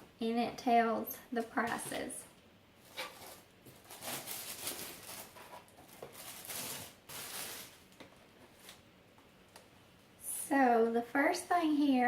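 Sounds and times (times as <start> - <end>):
paper and packaging rustling: 2.8 - 8.8.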